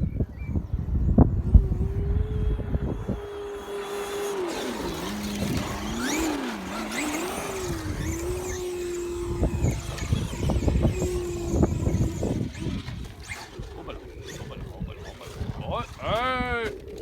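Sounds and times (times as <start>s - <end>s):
electric motor whining: 0.6s - 17.0s
tyres crunching gravel: 2.8s - 17.0s.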